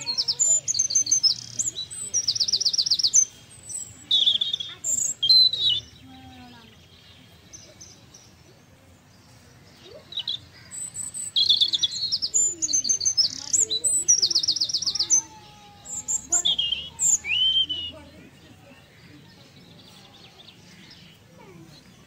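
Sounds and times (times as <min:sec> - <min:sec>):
small birds chirping and singing: 0:00.0 - 0:22.0.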